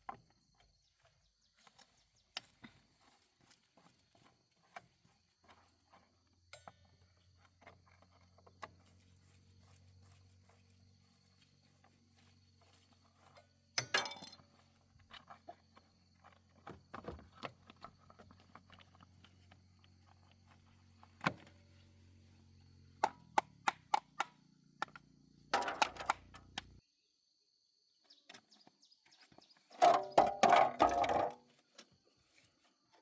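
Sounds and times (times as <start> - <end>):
dense clatter: 29.8 - 31.4.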